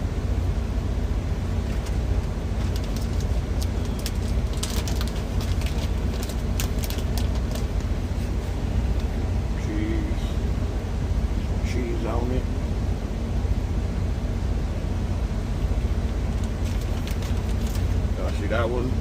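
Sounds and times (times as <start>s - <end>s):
steady low drone: 0.0s - 19.0s
sharp crackles and pops: 1.6s - 7.9s, 16.3s - 18.0s.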